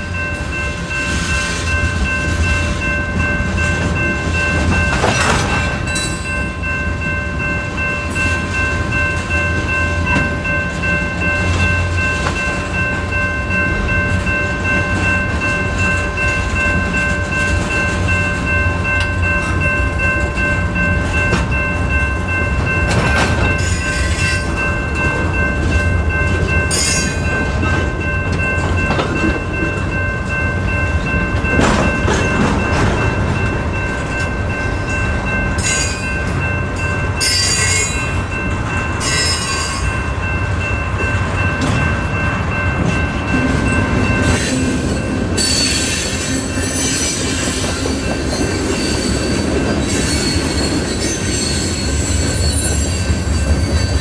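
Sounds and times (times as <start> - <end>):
train wheels rumbling on rail: 0.0 - 54.0
high wheel squeals: 44.2 - 54.0.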